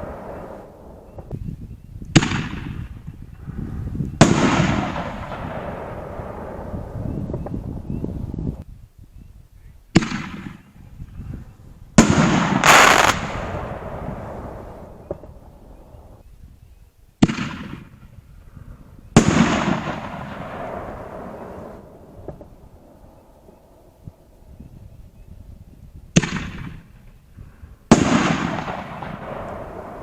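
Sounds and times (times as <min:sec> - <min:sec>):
firework shells banging: 0:12.4 - 0:13.8.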